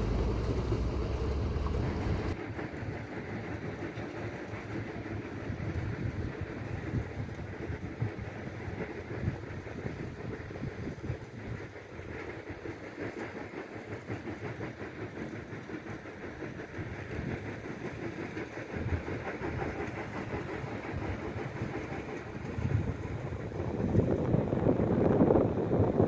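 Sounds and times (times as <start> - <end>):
vehicle rumbling on highway: 0.0 - 2.4.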